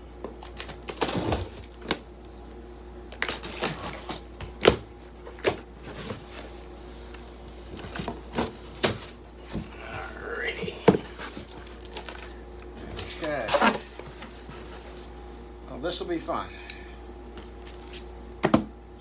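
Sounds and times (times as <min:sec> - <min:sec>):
cardboard box being opened: 0:07.6 - 0:15.1.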